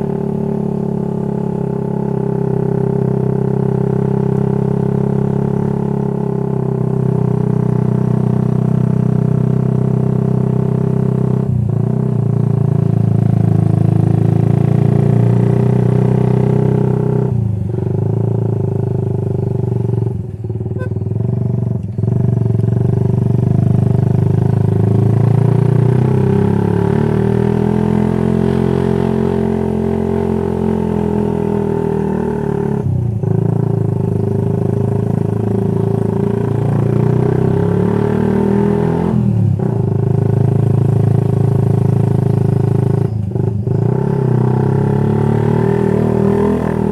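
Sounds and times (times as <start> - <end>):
motorcycle exhaust: 0.0 - 46.9.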